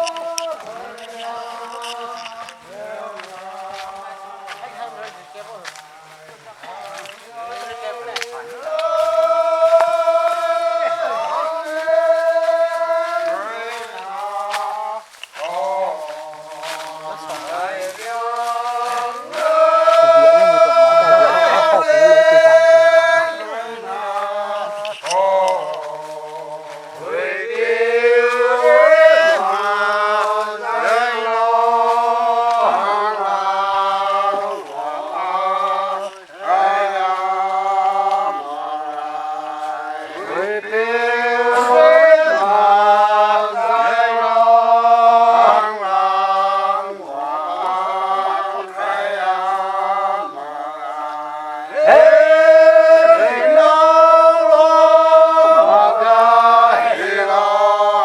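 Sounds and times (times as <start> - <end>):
men singing unaccompanied: 0.0 - 58.0.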